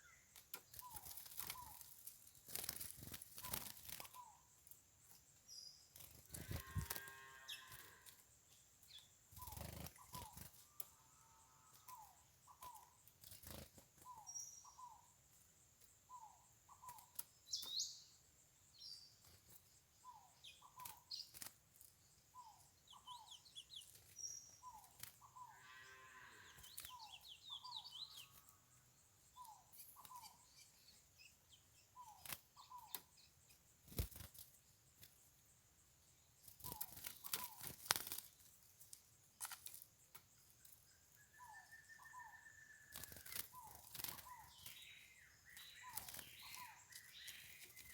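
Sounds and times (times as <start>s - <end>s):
higher bird chirps: 5.5s - 8.2s, 22.3s - 34.2s, 40.8s - 47.9s
faint bird calls: 36.6s - 38.2s, 40.9s - 47.9s.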